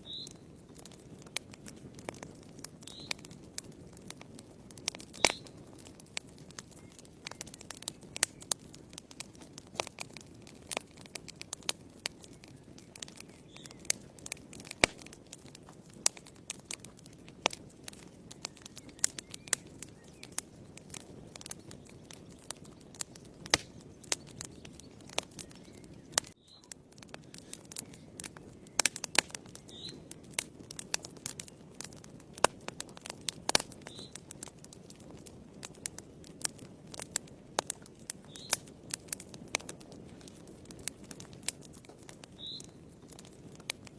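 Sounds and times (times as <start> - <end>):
fire pops and snaps: 0.0 - 43.9
rush of burning flames: 0.0 - 43.9.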